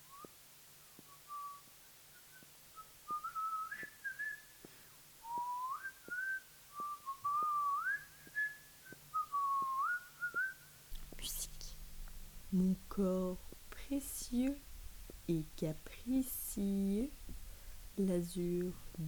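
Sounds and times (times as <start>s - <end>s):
person whistling a tune: 0.0s - 0.4s, 1.0s - 11.4s.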